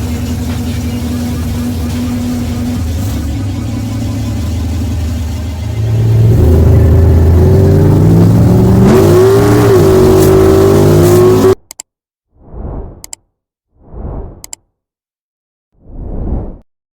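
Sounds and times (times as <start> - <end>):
pickup truck engine revving: 0.0 - 11.6.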